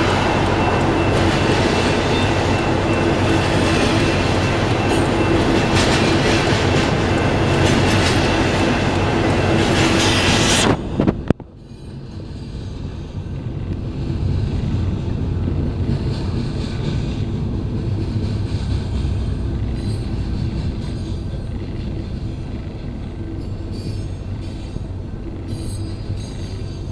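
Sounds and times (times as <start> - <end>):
freight train wheels clattering: 0.0 - 26.9
low steady rumble: 10.8 - 25.5.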